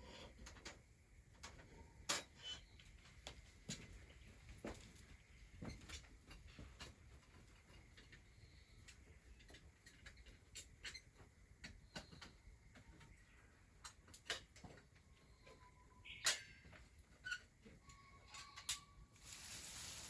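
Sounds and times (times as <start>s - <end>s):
wood fire crackling: 19.2s - 20.0s.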